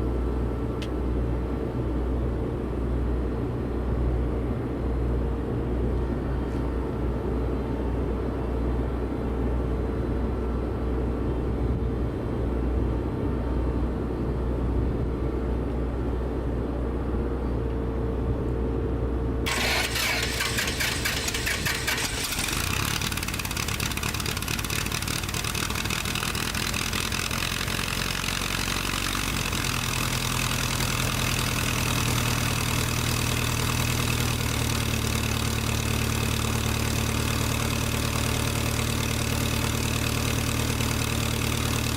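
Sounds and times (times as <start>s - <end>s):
low engine rumble: 0.0s - 41.9s
engine cranking and starting: 19.5s - 26.6s.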